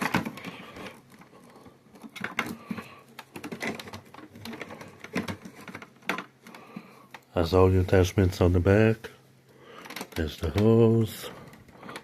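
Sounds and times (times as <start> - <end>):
plastic clicks and knocks: 0.0 - 7.3, 9.8 - 10.8.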